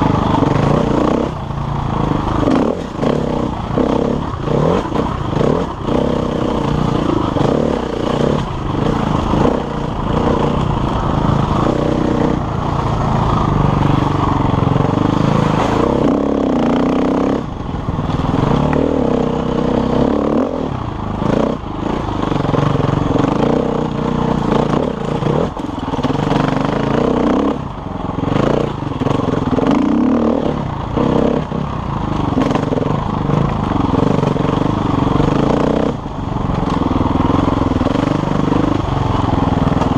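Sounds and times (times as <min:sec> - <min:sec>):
dirt bike engine revving: 0:00.0 - 0:39.9
bike rattles and knocks: 0:28.2 - 0:39.9.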